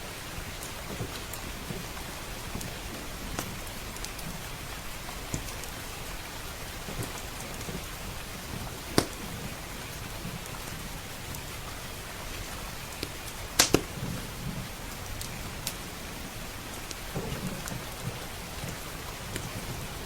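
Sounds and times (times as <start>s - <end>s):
steady rain: 0.0s - 20.0s
wood fire crackling and popping: 0.0s - 20.0s.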